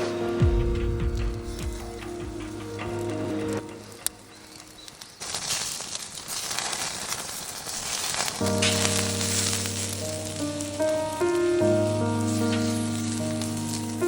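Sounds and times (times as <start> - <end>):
background music: 0.0 - 5.2, 8.4 - 14.0
food sizzling: 0.0 - 14.0.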